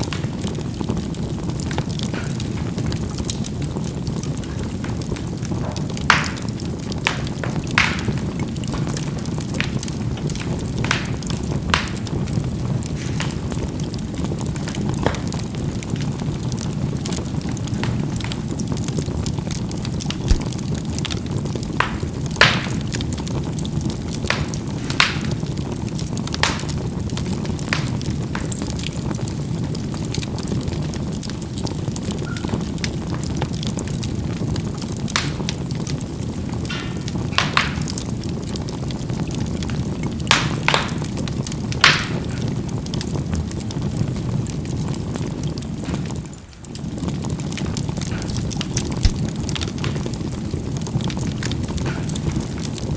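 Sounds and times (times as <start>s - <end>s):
charcoal fire rushing: 0.0s - 52.9s
charcoal popping: 0.0s - 52.9s
dull low knock: 20.3s - 20.6s.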